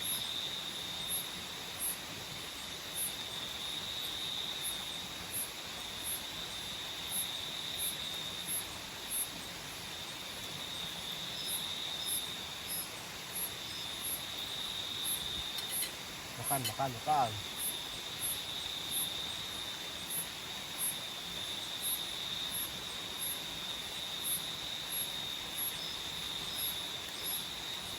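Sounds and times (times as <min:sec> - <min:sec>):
cricket chirping: 0:00.0 - 0:27.9
insect high trill: 0:11.4 - 0:19.4.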